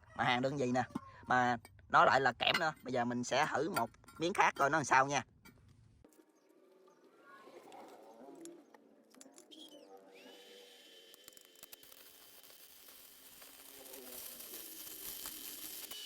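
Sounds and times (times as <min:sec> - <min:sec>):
welding arc hiss and whine: 0:10.3 - 0:16.0.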